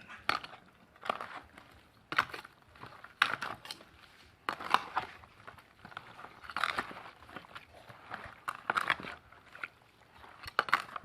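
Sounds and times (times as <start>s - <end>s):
chicken stirred in wet marinade: 0.0s - 11.0s.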